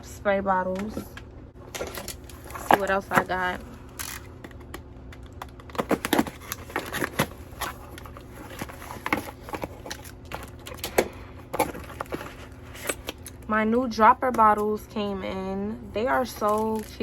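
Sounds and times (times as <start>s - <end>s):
packaging rustling and crinkling: 5.4s - 13.4s.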